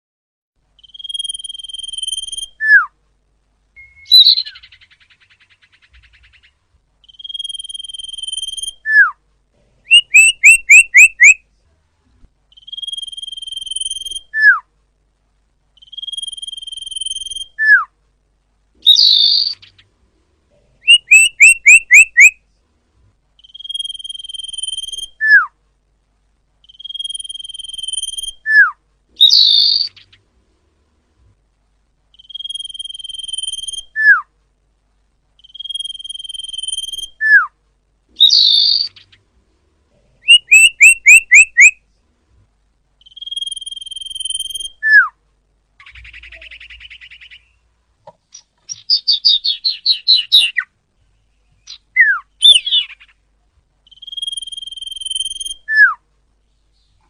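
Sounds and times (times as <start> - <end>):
bird whistling calls: 0.8 - 2.9, 3.8 - 9.2, 9.9 - 11.4, 12.5 - 14.6, 15.8 - 17.9, 18.8 - 19.8, 20.8 - 22.4, 23.4 - 25.5, 26.6 - 30.1, 32.2 - 34.3, 35.4 - 37.5, 38.2 - 39.1, 40.2 - 41.8, 43.0 - 45.1, 45.8 - 47.6, 48.3 - 50.7, 51.7 - 53.1, 53.9 - 56.0
harsh rasping bird call: 9.9 - 11.4, 20.8 - 22.3, 40.2 - 41.7.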